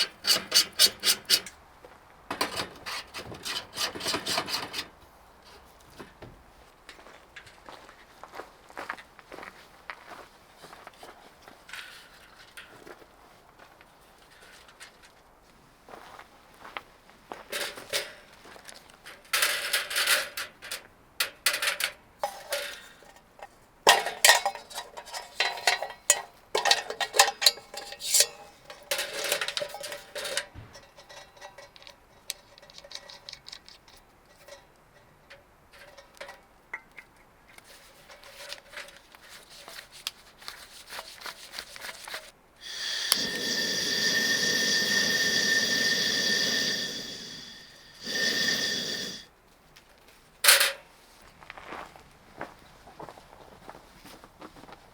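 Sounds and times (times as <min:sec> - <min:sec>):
metal and glass cookware clinking: 0:23.9 - 0:31.6
steady hiss: 0:40.9 - 0:49.3.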